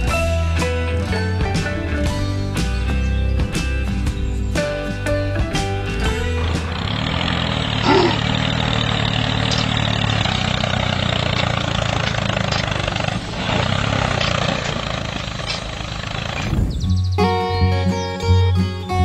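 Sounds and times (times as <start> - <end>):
motor humming: 6.2 - 16.8.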